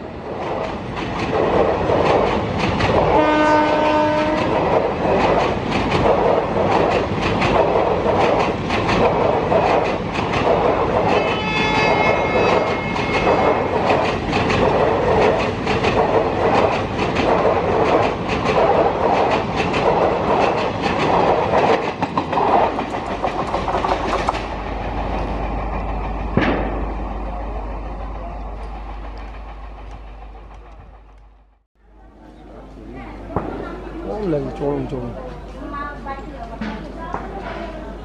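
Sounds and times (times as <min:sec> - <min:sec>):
faint steady train rumble: 0:00.0 - 0:38.0
train wheels clattering over rail joints: 0:00.3 - 0:27.4.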